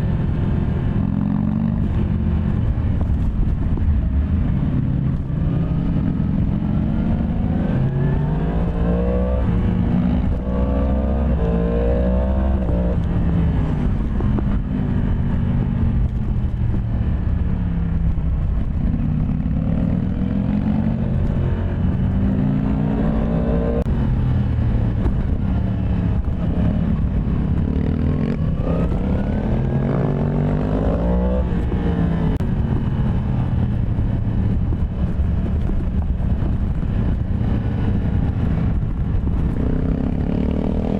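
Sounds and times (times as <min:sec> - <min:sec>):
motorcycle engine revving: 0:00.7 - 0:40.9.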